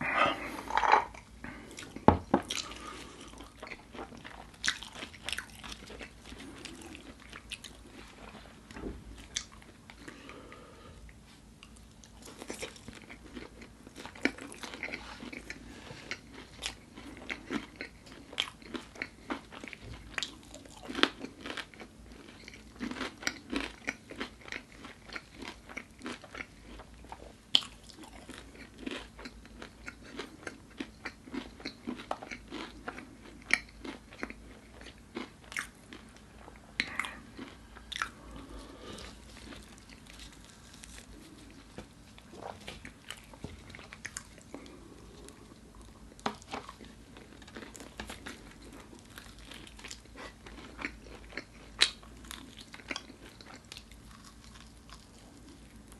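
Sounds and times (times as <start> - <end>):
crunching crispy chicken: 39.3 - 41.7, 46.2 - 55.9.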